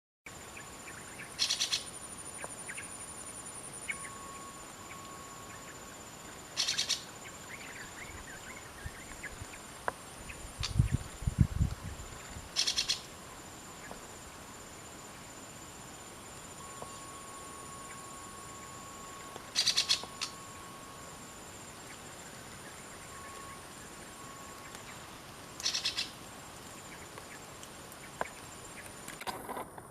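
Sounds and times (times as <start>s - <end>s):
high insect drone: 0.3s - 29.9s
parakeet harsh chattering calls: 19.6s - 20.3s, 25.6s - 26.1s.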